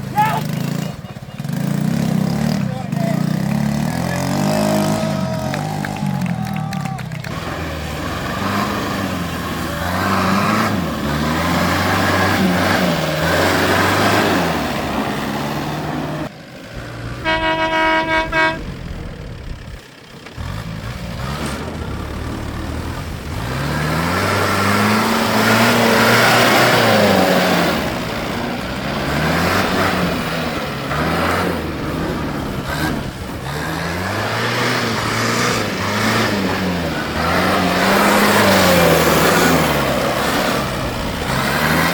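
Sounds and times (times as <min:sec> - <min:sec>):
tractor engines revving: 0:00.0 - 0:41.9
horn blast: 0:17.2 - 0:19.4.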